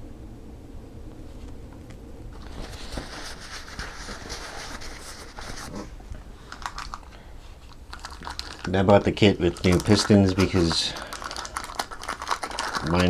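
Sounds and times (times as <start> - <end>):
packaging rustling and crinkling: 2.3 - 13.0.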